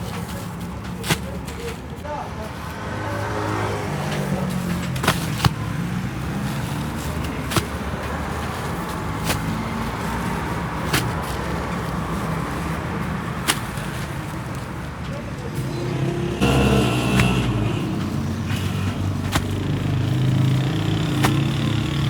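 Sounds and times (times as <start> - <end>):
motor humming: 16.4 - 18.0.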